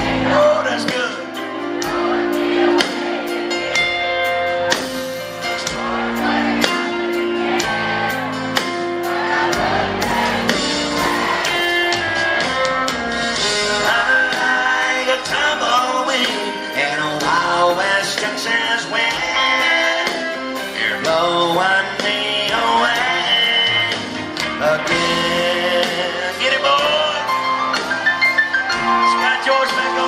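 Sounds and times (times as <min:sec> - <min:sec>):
country band playing: 0:00.0 - 0:30.0
person singing: 0:13.5 - 0:27.4.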